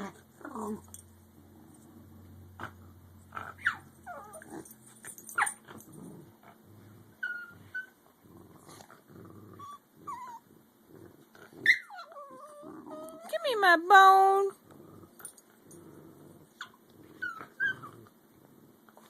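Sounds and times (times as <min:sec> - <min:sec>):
dogs growling: 0:00.0 - 0:13.4, 0:14.5 - 0:19.0
dog yelps: 0:03.6 - 0:04.5, 0:11.6 - 0:13.3.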